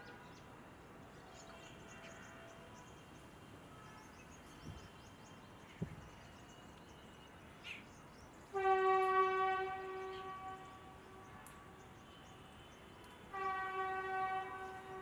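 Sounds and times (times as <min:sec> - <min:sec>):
train horn blast: 0:08.5 - 0:12.3, 0:13.0 - 0:15.0.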